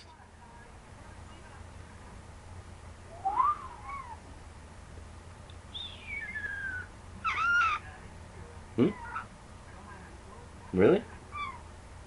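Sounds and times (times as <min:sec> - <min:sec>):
pet bird whistling: 0:03.1 - 0:04.2, 0:05.7 - 0:07.8.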